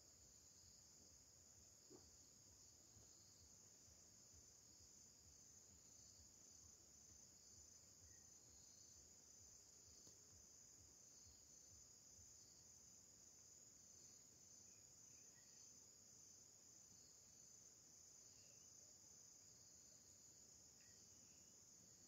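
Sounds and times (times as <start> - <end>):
high-pitched insect trill: 0.0 - 22.0.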